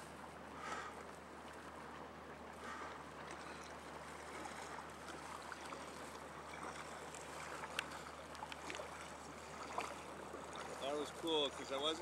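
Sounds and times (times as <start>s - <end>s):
water lapping and dripping: 0.0s - 12.0s
small water splashes: 0.6s - 12.0s.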